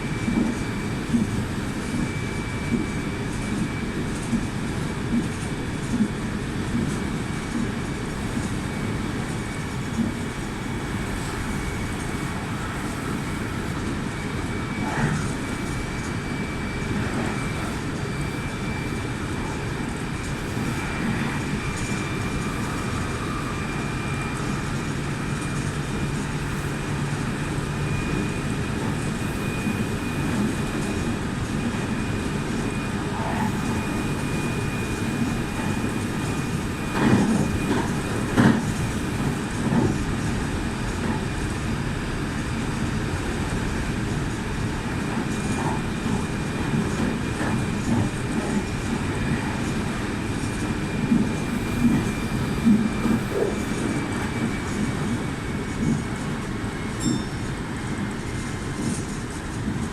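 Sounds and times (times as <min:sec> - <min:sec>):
wheels rumbling on rail: 0:00.0 - 0:59.9
faint high whine: 0:08.0 - 0:59.4.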